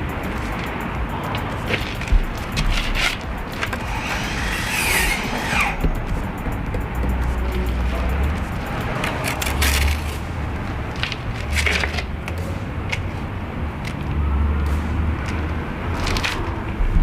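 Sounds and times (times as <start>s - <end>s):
trowel scraping on brick: 2.6s - 7.8s.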